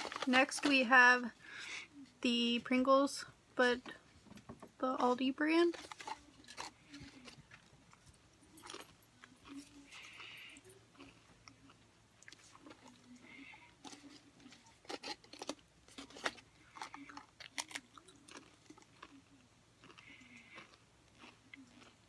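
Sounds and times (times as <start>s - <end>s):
potato crisp crunching: 5.7s - 7.9s, 8.6s - 22.0s.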